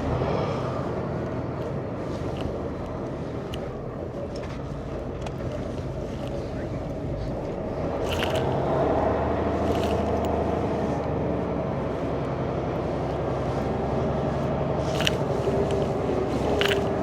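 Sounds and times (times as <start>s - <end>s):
truck diesel engine running: 0.0s - 17.0s
short clicks or rattles: 8.0s - 8.7s, 9.6s - 10.4s, 14.8s - 17.0s.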